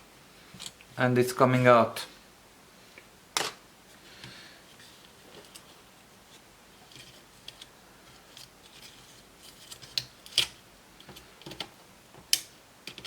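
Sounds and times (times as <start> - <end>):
small parts clicking and tapping: 8.3 - 13.0.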